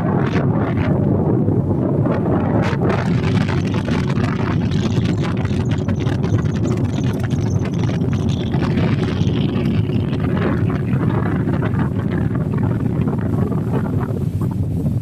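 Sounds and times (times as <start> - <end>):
boat engine running: 0.0 - 15.0
wind buffeting microphone: 0.0 - 15.0.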